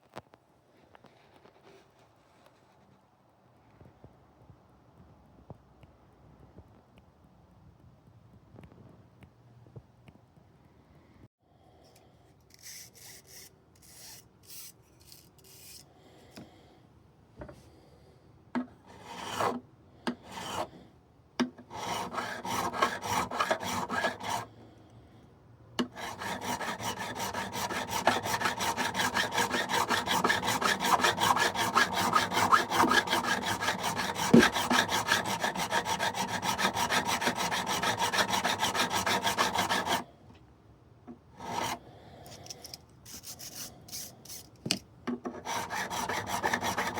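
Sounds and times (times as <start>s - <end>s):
leveling tool rubbing on guitar frets: 26.0s - 40.0s, 45.5s - 46.9s.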